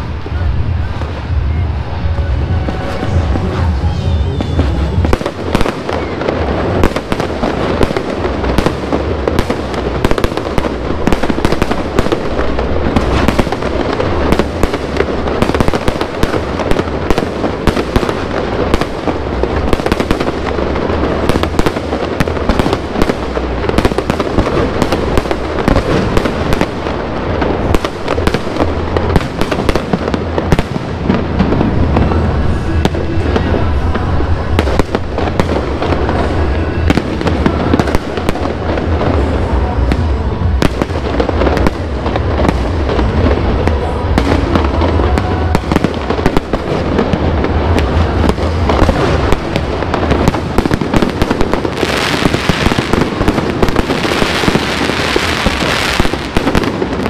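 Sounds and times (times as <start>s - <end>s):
deep booming firework bursts: 0.0s - 57.0s
fireworks crackling: 0.0s - 57.0s.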